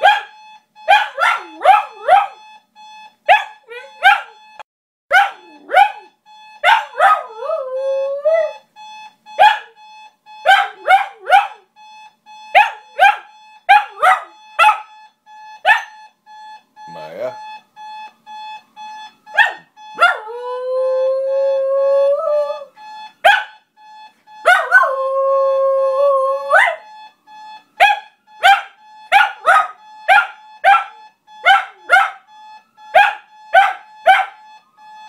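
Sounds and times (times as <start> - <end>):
alarm clock beeping: 0.0 - 35.0
dog howling and yipping: 6.7 - 8.5, 24.5 - 26.8.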